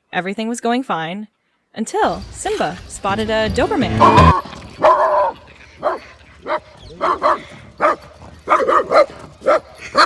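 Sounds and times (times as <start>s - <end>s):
dog barking: 4.8s - 10.0s.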